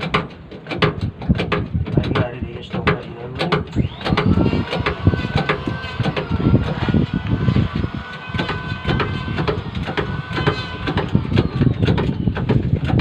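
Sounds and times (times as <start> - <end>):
metallic knocks and clanks: 0.0 - 13.0
low rumble: 3.8 - 13.0.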